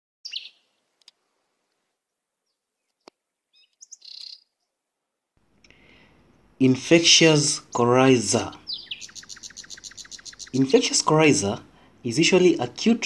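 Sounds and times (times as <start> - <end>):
high bird chirps: 0.2 - 0.8, 3.5 - 4.6, 8.5 - 10.8.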